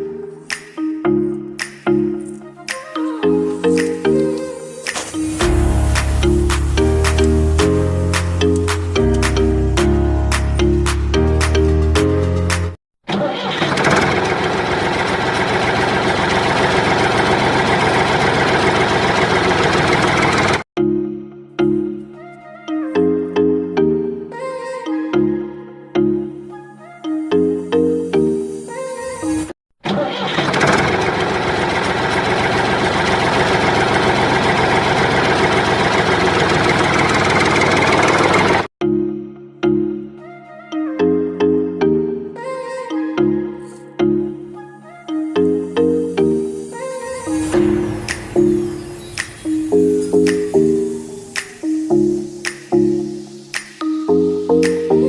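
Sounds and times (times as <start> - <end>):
engine running steadily: 13.6 - 20.6, 30.3 - 38.7.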